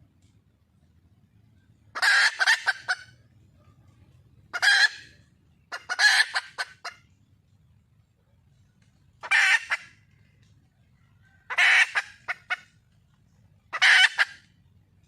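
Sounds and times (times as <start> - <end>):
junglefowl hen harsh calls: 1.9 - 3.2, 4.5 - 7.1, 9.2 - 10.2, 11.3 - 12.9, 13.7 - 14.6.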